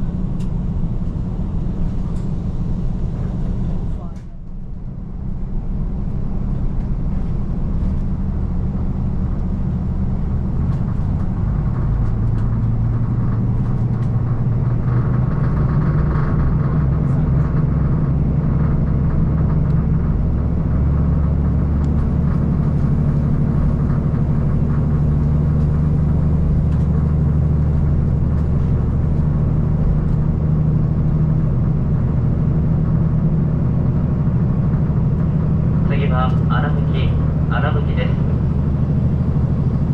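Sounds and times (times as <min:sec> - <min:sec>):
diesel railcar engine drone: 0:00.0 - 0:39.9
train running noise: 0:00.0 - 0:39.9.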